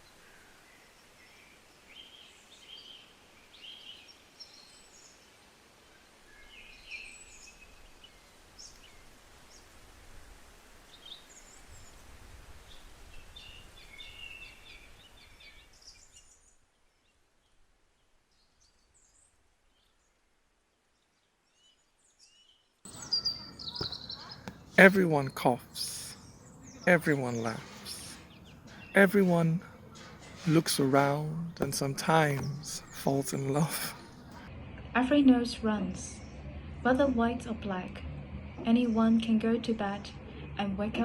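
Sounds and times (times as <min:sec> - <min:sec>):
faint outdoor hiss: 0:00.0 - 0:34.4
birds chirping: 0:22.9 - 0:34.4.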